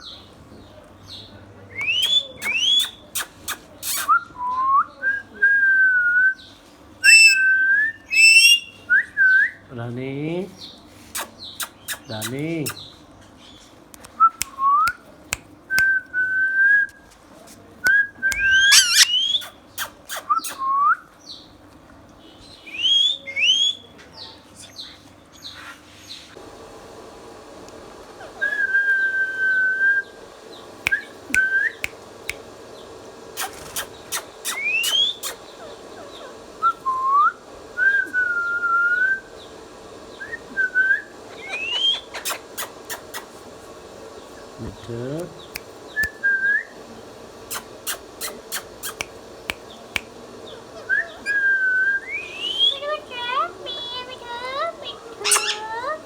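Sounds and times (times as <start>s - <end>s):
parakeet whistling: 1.8s - 3.2s, 6.4s - 9.6s, 18.3s - 19.5s, 30.8s - 31.9s, 33.4s - 39.3s, 40.1s - 43.3s, 47.5s - 49.7s, 50.5s - 56.0s
parakeet sharp clicks: 1.8s - 4.1s, 11.1s - 12.8s, 18.3s - 20.6s, 30.8s - 32.6s, 33.4s - 35.5s, 42.1s - 43.4s, 45.2s - 46.2s, 47.4s - 50.3s.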